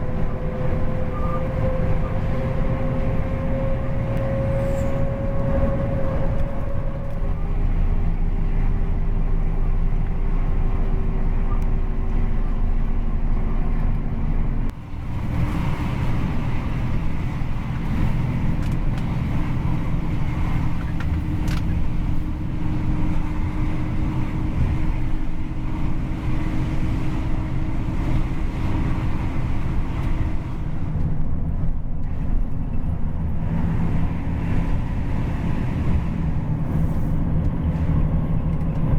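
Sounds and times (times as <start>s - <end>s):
bus engine rumbling: 0.0s - 38.9s.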